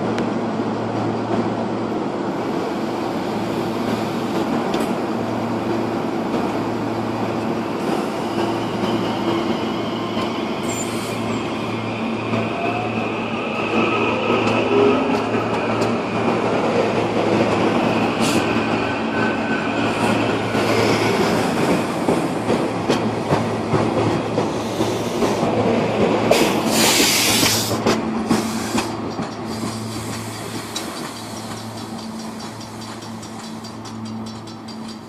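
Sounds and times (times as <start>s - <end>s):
rail joints clickety-clack: 0.0s - 35.0s
wheel and track rumble: 12.3s - 35.0s
loud hiss: 26.3s - 31.7s.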